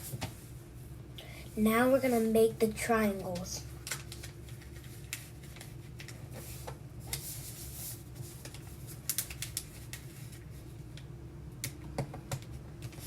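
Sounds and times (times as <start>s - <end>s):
paper crackles: 3.2s - 10.7s
paper rustling and crinkling: 3.2s - 10.7s.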